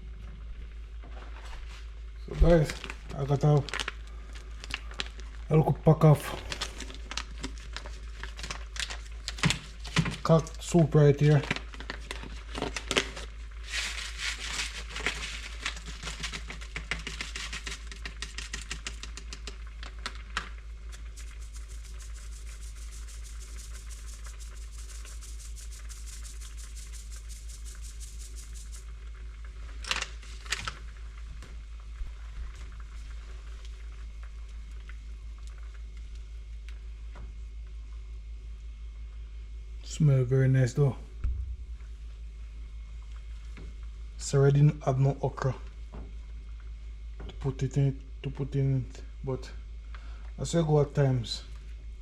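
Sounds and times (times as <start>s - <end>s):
packet crinkling: 2.4s - 29.0s, 29.8s - 31.2s
steady hiss: 20.8s - 45.8s.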